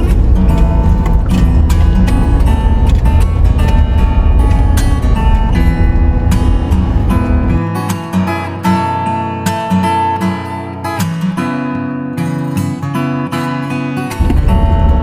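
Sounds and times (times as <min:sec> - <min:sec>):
low rumble: 0:00.0 - 0:07.8, 0:14.2 - 0:15.0
acoustic guitar melody: 0:00.0 - 0:15.0.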